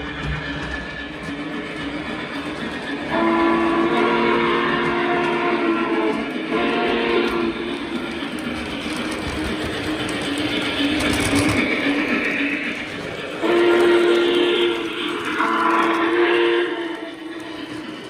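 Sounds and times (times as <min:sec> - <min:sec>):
model locomotive running sound: 0:00.0 - 0:18.0
steam whistle through small speaker: 0:03.1 - 0:07.5, 0:13.4 - 0:17.1.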